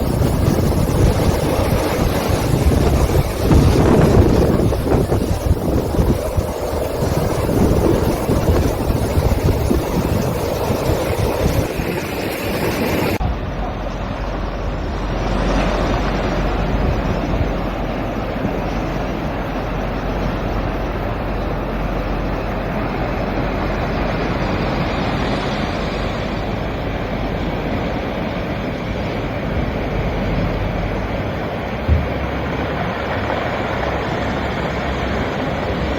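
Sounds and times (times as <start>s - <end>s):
sea waves washing over rocks: 0.0s - 13.2s
low rumble: 0.0s - 35.3s
wind: 0.0s - 35.9s.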